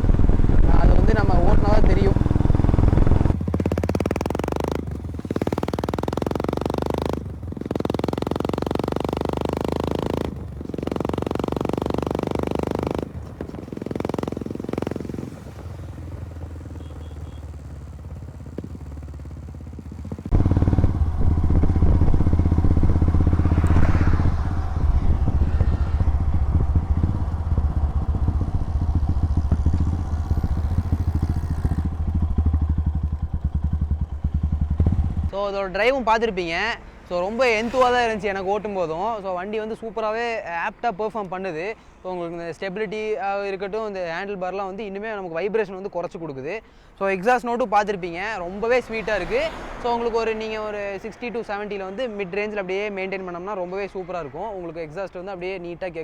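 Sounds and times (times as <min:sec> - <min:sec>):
motorcycle exhaust note: 0:00.0 - 0:39.2.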